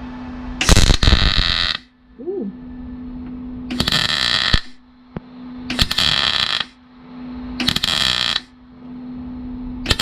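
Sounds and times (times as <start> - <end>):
welder humming: 0.0 - 10.0
welding arc bursts: 0.6 - 1.9, 3.7 - 4.9, 5.7 - 6.8, 7.6 - 8.6.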